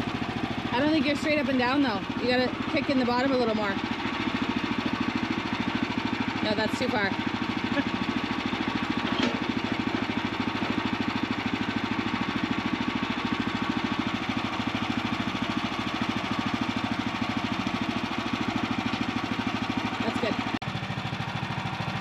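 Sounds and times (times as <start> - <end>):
small gasoline engine running: 0.0 - 22.0.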